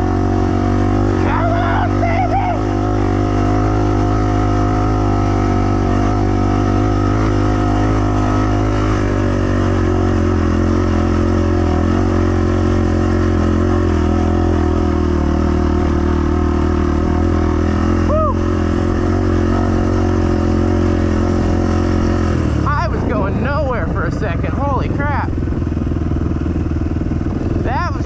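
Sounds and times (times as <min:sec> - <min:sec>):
dirt bike engine at high revs: 0:00.0 - 0:28.0
rear tire spinning: 0:00.0 - 0:28.0.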